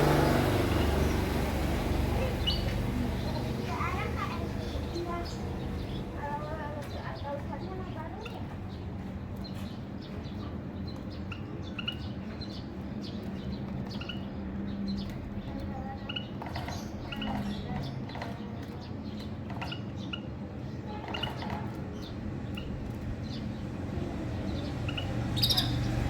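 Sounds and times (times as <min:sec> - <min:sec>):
steady low hum: 0:00.0 - 0:03.5
small birds chirping: 0:00.0 - 0:26.0.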